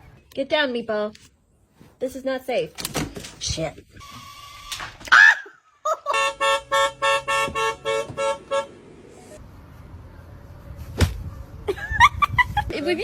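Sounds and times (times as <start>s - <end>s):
horn tooting: 6.1s - 8.9s.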